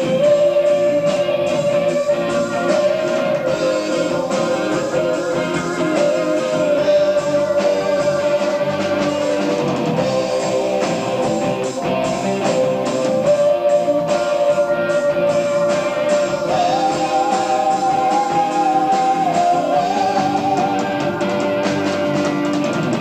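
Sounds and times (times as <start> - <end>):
bass: 0.0 - 23.0
drums: 0.0 - 23.0
electric guitar: 0.0 - 23.0
keyboards: 0.0 - 23.0.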